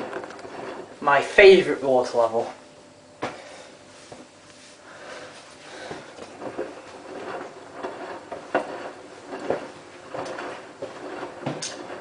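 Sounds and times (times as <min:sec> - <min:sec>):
washing machine drum turning: 0:05.7 - 0:12.0.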